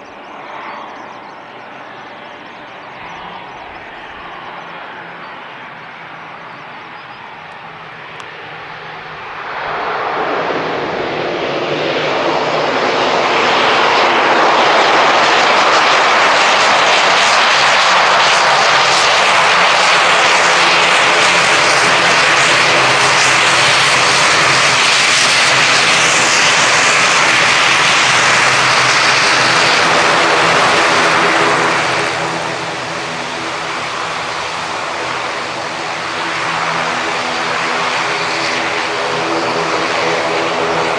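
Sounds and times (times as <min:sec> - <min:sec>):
low hum of propellers: 0:00.0 - 0:40.9
turboprop engines hissing: 0:00.0 - 0:40.9.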